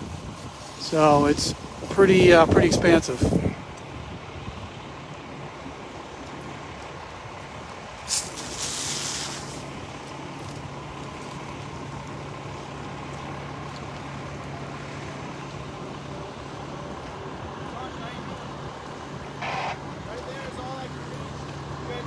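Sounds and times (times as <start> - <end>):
loud air hissing: 0.0 - 3.5, 8.0 - 9.9
truck engine idling: 0.0 - 22.0.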